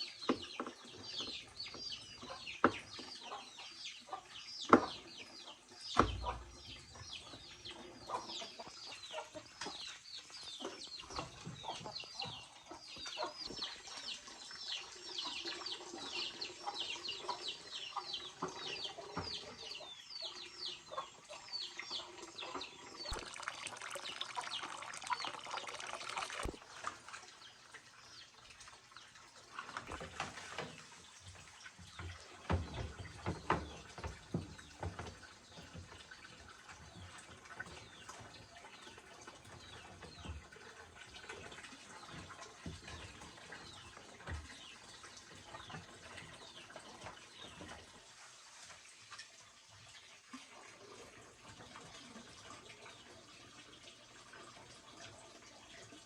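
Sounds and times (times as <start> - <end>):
birds chirping: 0.0 - 28.4.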